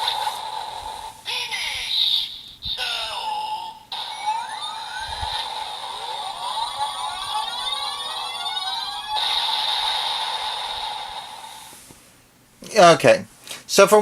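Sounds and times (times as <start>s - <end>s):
held buzzing tone: 2.3s - 11.8s
steady electronic tone: 2.7s - 11.9s.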